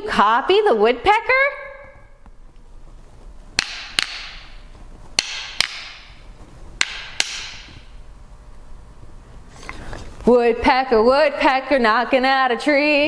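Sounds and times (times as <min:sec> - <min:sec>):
sticks tapped together: 0:03.6 - 0:04.6, 0:05.2 - 0:06.2, 0:06.8 - 0:07.9.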